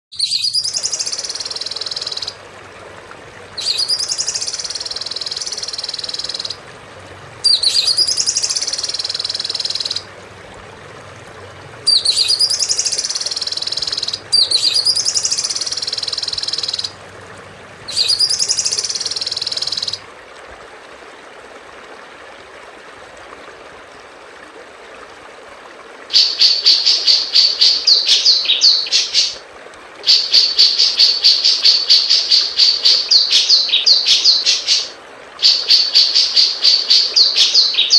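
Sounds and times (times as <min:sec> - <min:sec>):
songbird call with high trill: 0:00.1 - 0:02.4, 0:03.6 - 0:06.6, 0:07.4 - 0:10.0, 0:11.9 - 0:16.9, 0:17.9 - 0:20.0, 0:30.1 - 0:37.9.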